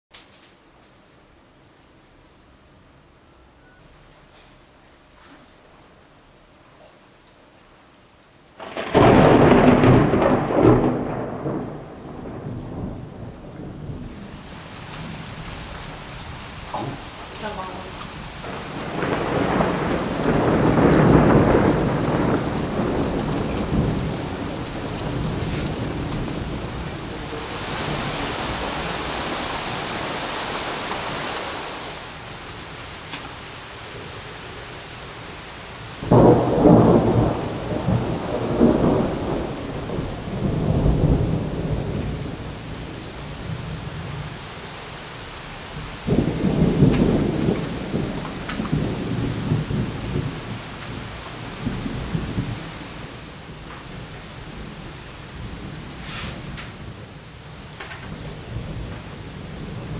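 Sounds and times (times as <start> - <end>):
steady rain: 0.1 - 59.9
thunder claps: 8.6 - 33.5, 35.9 - 44.4, 45.6 - 59.9
thunder rumbling: 8.6 - 59.9.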